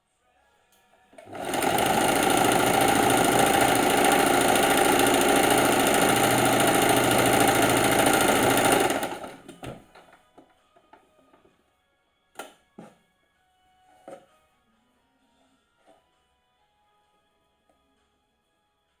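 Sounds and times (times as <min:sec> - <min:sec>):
sewing machine running: 0:01.2 - 0:09.8.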